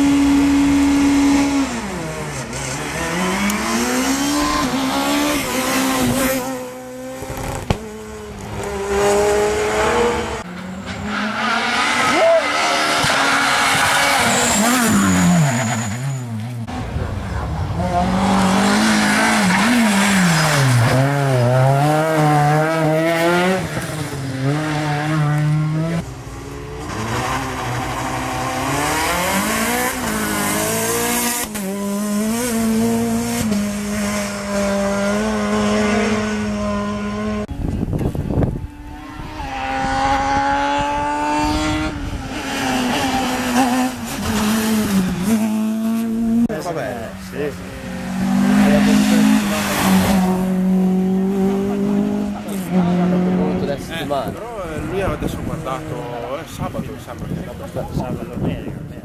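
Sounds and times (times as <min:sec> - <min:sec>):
rally car engine revving: 0:00.0 - 0:58.8
tyre squeal: 0:10.7 - 0:16.6.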